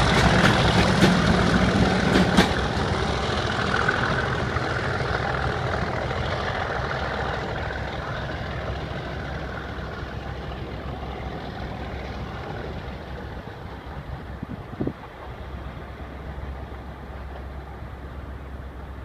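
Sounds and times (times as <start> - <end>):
diesel locomotive engine roaring: 0.0 - 19.0.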